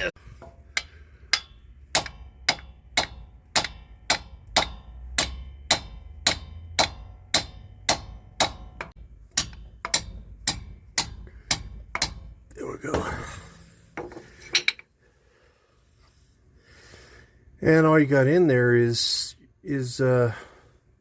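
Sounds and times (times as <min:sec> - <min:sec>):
hammer striking metal punch: 0:00.3 - 0:14.8.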